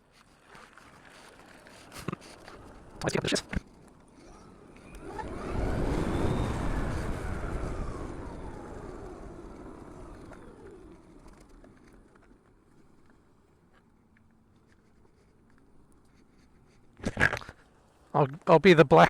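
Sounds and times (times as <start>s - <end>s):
road vehicle passing by: 3.6s - 13.0s.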